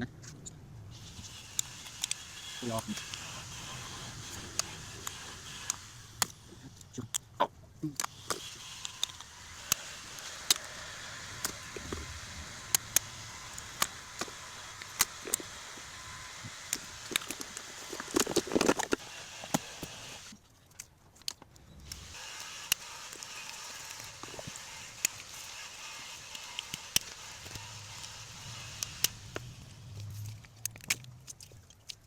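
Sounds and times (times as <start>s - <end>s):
steady hiss: 0.9s - 7.1s, 8.0s - 20.3s.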